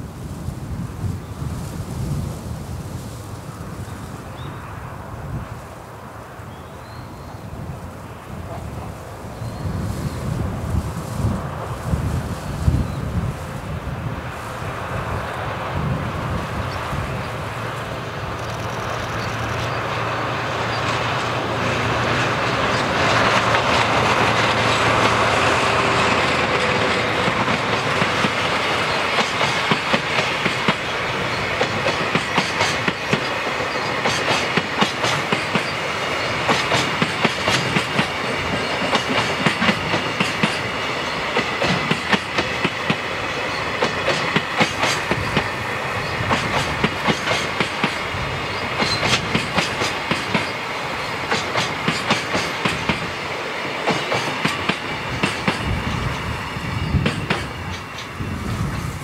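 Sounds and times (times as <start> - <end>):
train running gear rumble: 0.0 - 59.0
train wheels clicking over rail joints: 16.2 - 59.0.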